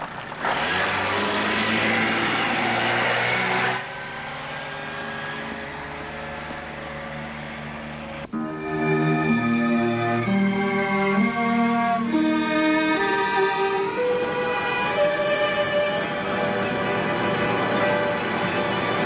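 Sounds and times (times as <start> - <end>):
engine running: 0.0 - 19.0
loud rushing noise: 0.4 - 6.4, 12.8 - 19.0.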